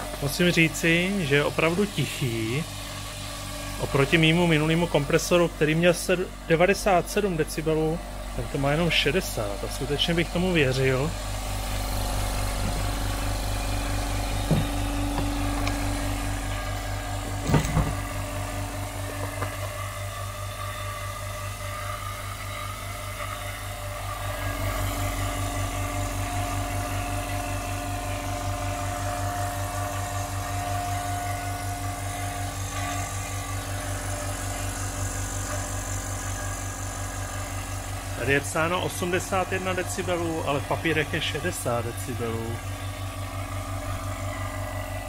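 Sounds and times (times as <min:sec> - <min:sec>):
air compressor running: 0:00.0 - 0:45.0
single knock: 0:14.4 - 0:15.4.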